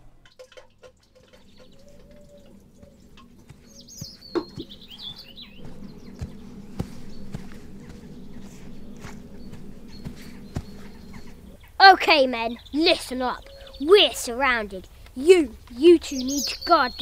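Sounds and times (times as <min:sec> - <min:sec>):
small bird chirping: 0:01.1 - 0:17.0.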